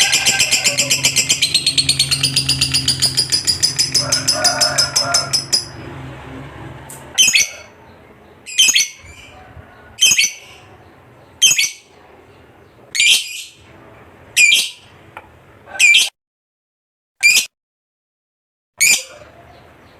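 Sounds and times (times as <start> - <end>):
lovebird calling: 0.0 - 5.8, 7.1 - 13.6, 14.4 - 14.9.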